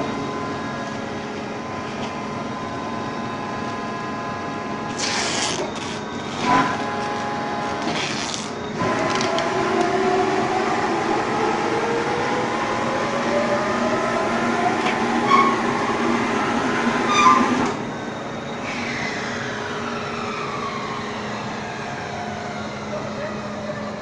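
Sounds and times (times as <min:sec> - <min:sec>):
baling machine running: 0:00.0 - 0:20.0.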